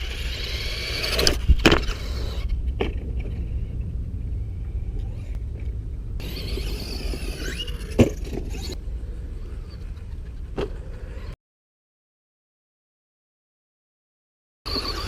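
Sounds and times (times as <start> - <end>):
electric motor whining: 0.0 - 2.5, 6.2 - 8.8, 14.7 - 15.0
low rumble: 0.0 - 11.4.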